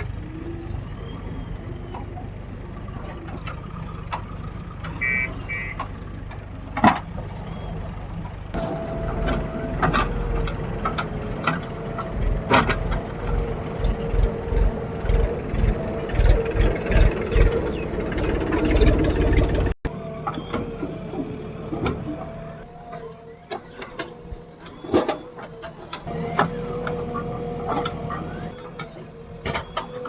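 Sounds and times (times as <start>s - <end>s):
heavy machinery diesel engines: 0.0s - 30.0s
short double beep: 5.0s - 5.8s.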